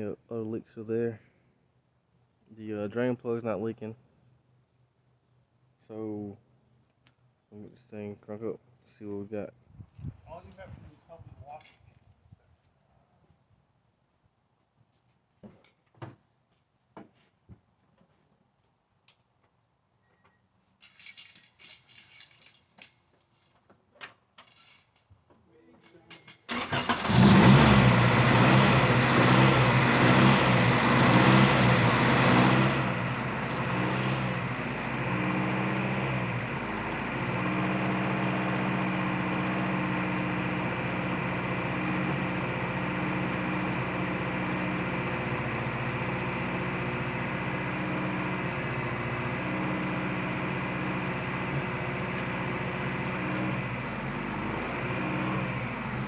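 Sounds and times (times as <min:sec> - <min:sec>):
car engine starting and idling: 0:26.5 - 0:56.0.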